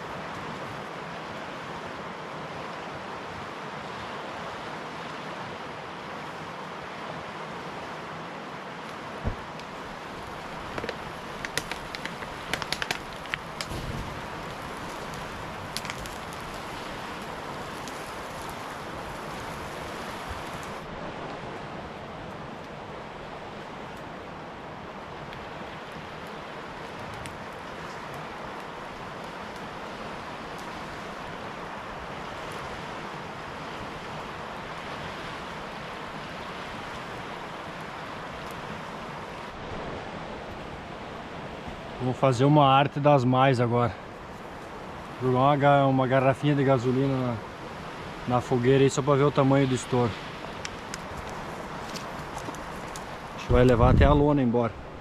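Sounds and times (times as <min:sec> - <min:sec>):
campfire crackling: 0:00.0 - 0:55.0
river water rushing: 0:00.0 - 0:55.0
sharp pops of fire: 0:09.2 - 0:20.8, 0:50.4 - 0:53.4
faint ticks: 0:10.7 - 0:13.7.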